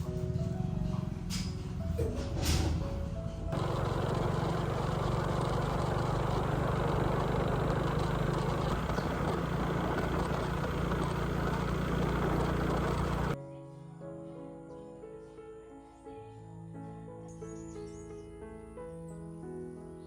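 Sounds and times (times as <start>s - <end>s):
engine running steadily: 3.3s - 13.4s.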